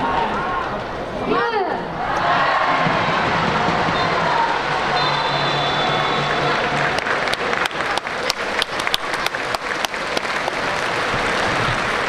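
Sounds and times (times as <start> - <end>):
crowd hubbub: 0.0 - 12.0
spectators applauding: 2.4 - 12.0.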